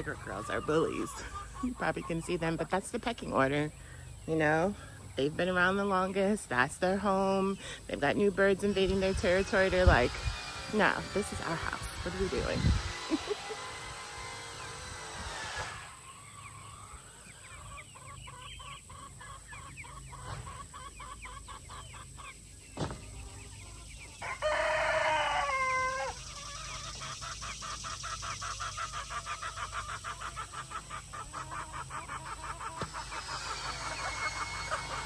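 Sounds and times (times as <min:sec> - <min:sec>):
chickens clucking: 0:00.0 - 0:35.0
rooster crowing: 0:24.2 - 0:26.2.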